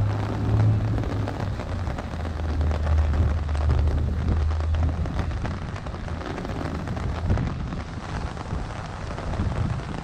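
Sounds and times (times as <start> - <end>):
low rumble: 0.0 - 10.0
raindrops tapping on an umbrella: 0.0 - 10.0.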